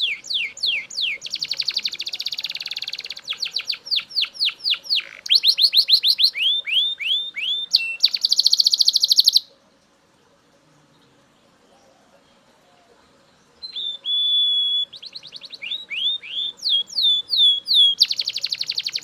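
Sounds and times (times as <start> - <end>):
canary singing trills and whistles: 0.0 - 9.5, 13.5 - 19.0.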